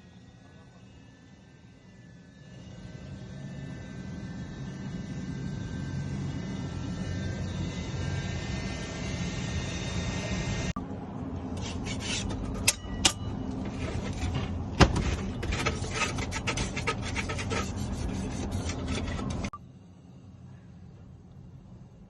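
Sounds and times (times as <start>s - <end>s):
hand tool scraping mortar: 15.1s - 19.5s.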